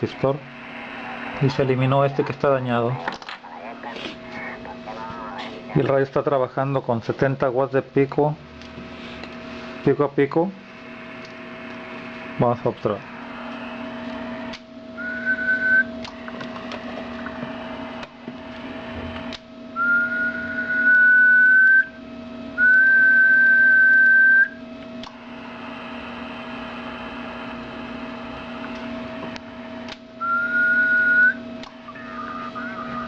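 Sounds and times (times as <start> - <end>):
steady hum and hiss: 0.0 - 33.0
person whistling steady notes: 15.0 - 15.9, 19.8 - 22.0, 22.6 - 24.6, 30.2 - 33.0.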